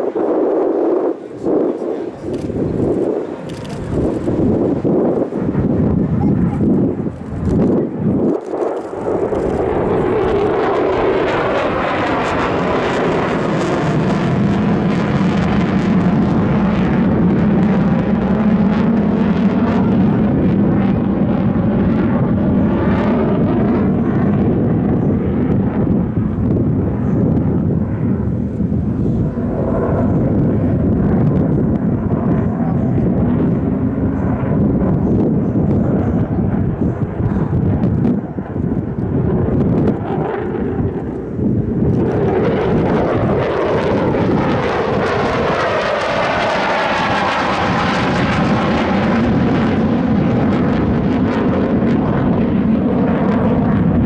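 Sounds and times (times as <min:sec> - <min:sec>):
military aircraft flying past: 0:00.0 - 0:54.0.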